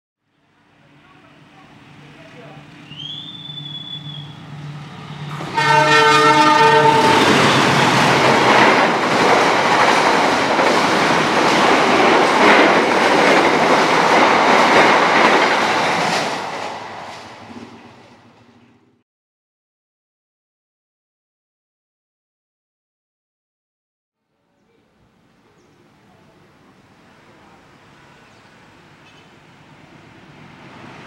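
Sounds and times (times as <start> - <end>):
train passing with wheel clatter: 0.6 - 19.0, 25.8 - 31.0
train horn blast: 5.4 - 7.7.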